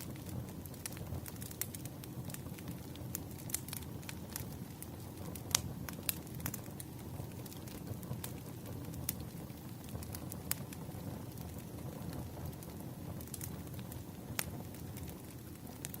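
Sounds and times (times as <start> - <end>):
firewood crackling and popping: 0.0 - 16.0
low rumble of flames: 0.0 - 16.0.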